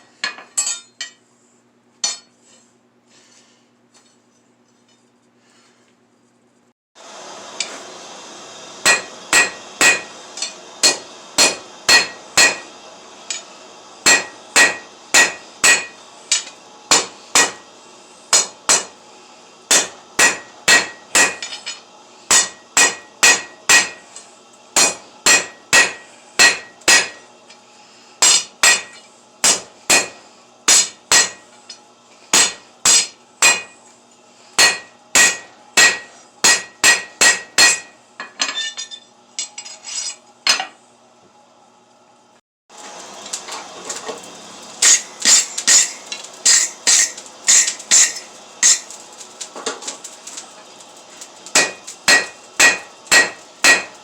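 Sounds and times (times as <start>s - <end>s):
steady low hum: 0.0s - 42.4s
hammer blows on anvil: 8.8s - 13.4s, 14.0s - 17.7s, 19.7s - 21.7s, 22.3s - 24.1s, 24.8s - 27.2s, 28.2s - 31.4s, 34.6s - 38.9s, 51.6s - 54.0s.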